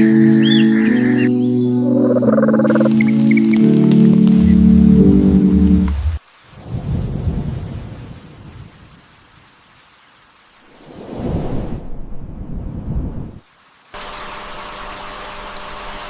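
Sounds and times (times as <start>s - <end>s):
sustained music tones: 0.0s - 6.2s
rain falling: 1.8s - 11.4s, 13.3s - 16.0s
low thunder rolls: 4.6s - 8.7s.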